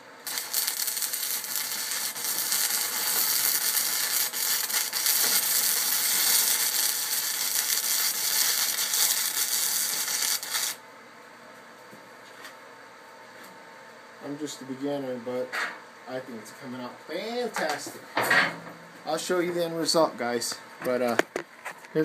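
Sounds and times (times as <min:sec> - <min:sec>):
welding arc crackling: 0:00.0 - 0:10.8.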